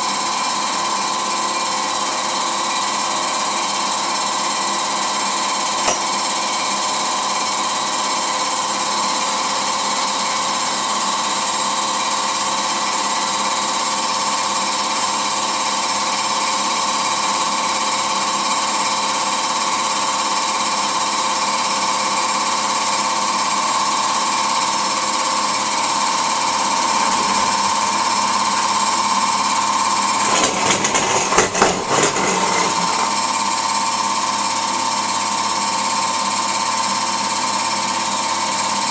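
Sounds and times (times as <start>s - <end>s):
air compressor running: 23.5s - 38.8s
knocks and rattles: 30.2s - 33.2s.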